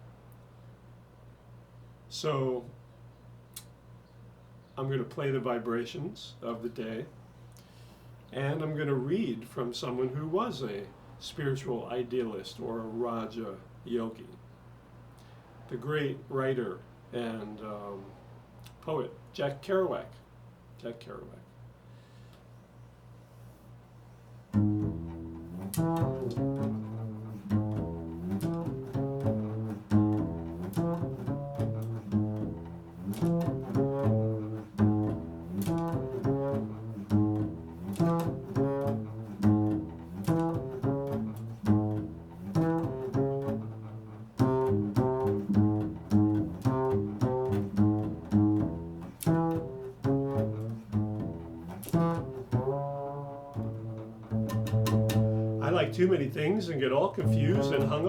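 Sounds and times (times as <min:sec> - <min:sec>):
plucked string instrument: 0:24.5 - 0:56.0, 0:57.2 - 0:58.0.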